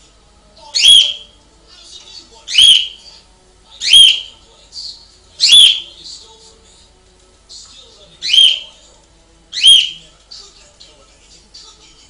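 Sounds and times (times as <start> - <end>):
bird whistled calls: 0.8 - 1.3, 2.5 - 3.0, 3.8 - 4.3, 5.4 - 5.9, 8.2 - 8.7, 9.5 - 10.0
soft bird chirps: 0.8 - 1.3, 2.5 - 3.0, 3.8 - 4.3, 5.4 - 5.9, 8.2 - 8.7, 9.5 - 10.0.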